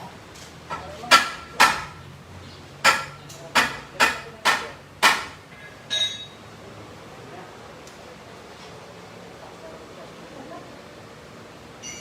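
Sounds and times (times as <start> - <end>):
metal-on-metal strikes: 2.8 - 6.4.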